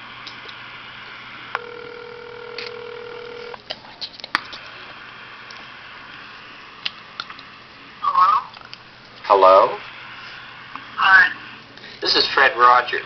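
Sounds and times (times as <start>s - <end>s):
phone line hiss: 1.5s - 3.6s
telephone ringback tone: 1.6s - 3.6s.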